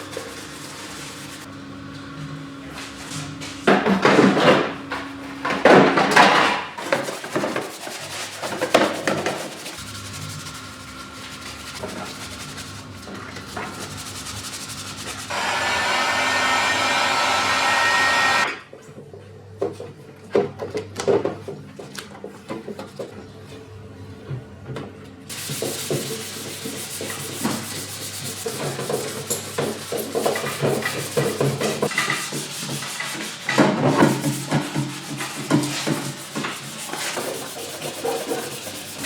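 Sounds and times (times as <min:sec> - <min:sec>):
scrubbing plastic parts: 0:06.1 - 0:15.3, 0:25.3 - 0:39.0.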